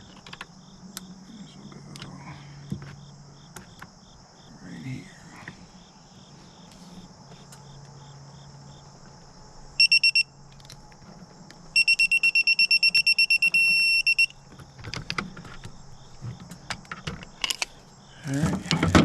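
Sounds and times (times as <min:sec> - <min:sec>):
torque wrench beeping: 0:09.8 - 0:10.3, 0:11.8 - 0:14.4.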